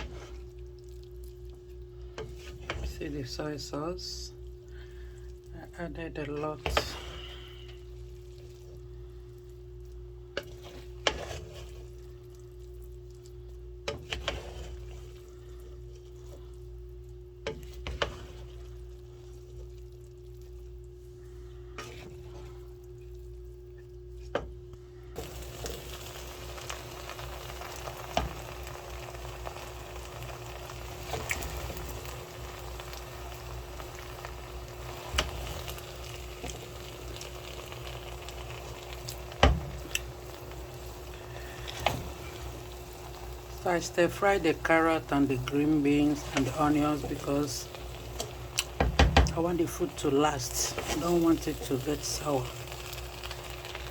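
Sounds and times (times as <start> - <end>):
stir-fry sizzling: 0.0 - 24.6, 25.2 - 53.9
constant low hum: 0.0 - 53.9.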